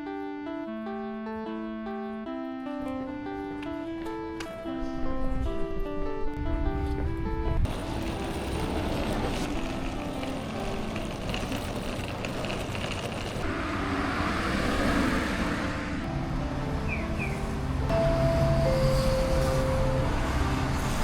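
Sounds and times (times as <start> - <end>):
motor traffic passing: 7.6 - 21.0.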